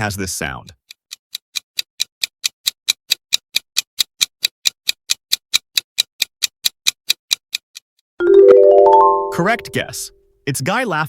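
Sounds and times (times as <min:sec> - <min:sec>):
clock-like timer ticking: 0:00.7 - 0:07.8.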